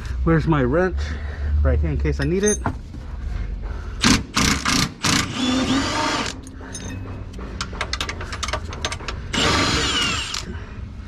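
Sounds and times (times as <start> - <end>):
impact wrench spinning a nut: 7.6 - 10.5.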